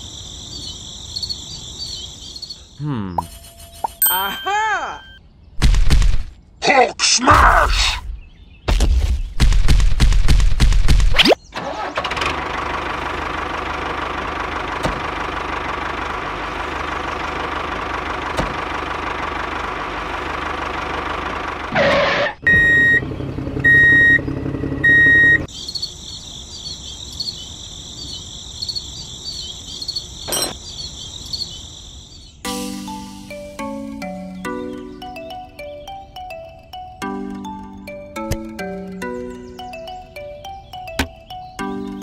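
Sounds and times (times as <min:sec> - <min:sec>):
tractor engine putter: 0:11.5 - 0:22.8.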